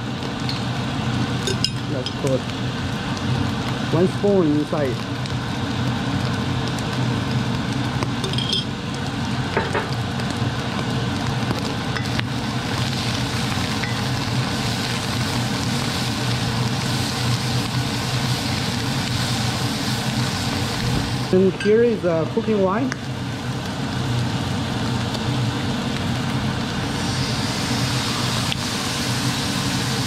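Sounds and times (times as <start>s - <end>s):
food sizzling in hot oil: 0.0s - 30.0s
range hood fan hum: 0.0s - 30.0s.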